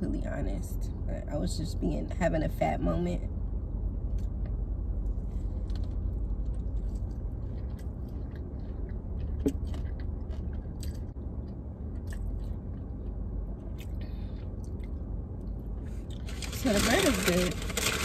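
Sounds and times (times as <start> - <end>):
steady low hum: 0.0 - 18.0
chewing crunchy fried food: 5.4 - 18.0.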